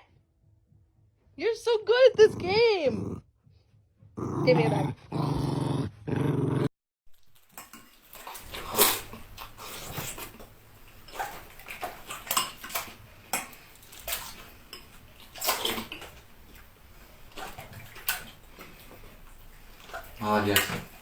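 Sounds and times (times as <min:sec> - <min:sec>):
dog growling: 0:02.0 - 0:03.3, 0:04.2 - 0:06.7.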